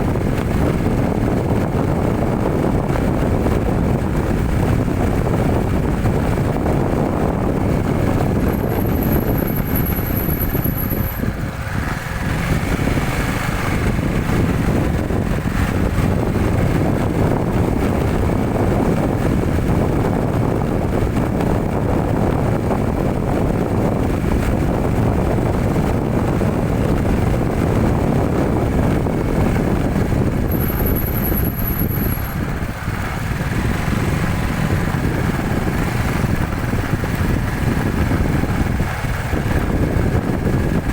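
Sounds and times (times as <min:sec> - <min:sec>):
vehicle engine and road noise: 0:00.0 - 0:40.9
faint high whine: 0:08.6 - 0:11.2, 0:30.5 - 0:32.3.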